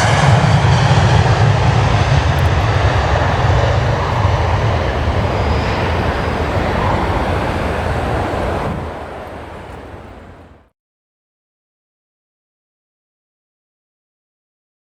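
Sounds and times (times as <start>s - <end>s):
plane engines roaring: 0.0s - 10.7s.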